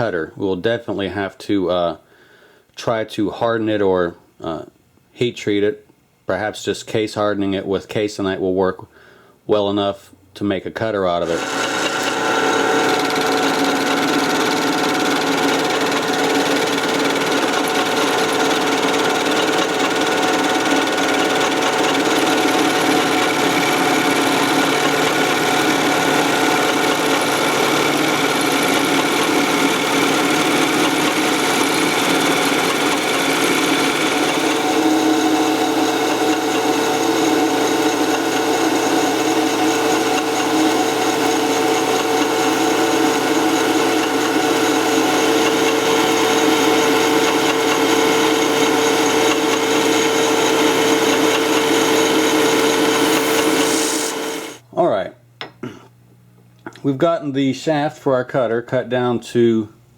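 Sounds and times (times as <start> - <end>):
cutter cutting steel bar: 11.2 - 54.6
metal lathe machine whine: 11.3 - 54.6.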